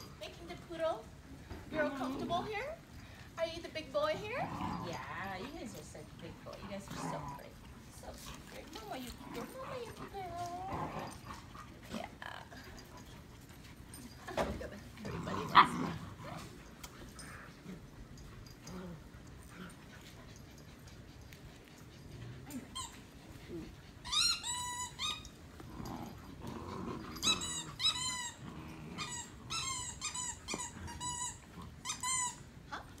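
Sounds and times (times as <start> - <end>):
dogs growling: 1.1 - 33.0
dogs yipping and whining: 15.4 - 33.0.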